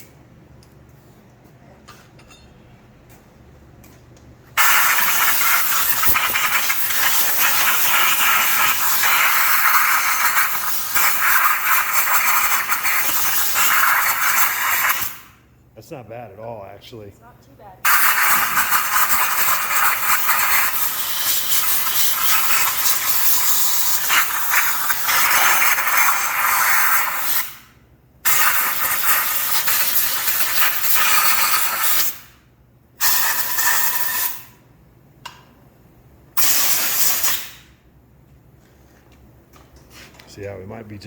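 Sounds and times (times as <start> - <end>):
compressed air blow gun hissing: 4.6 - 15.3, 17.9 - 27.6.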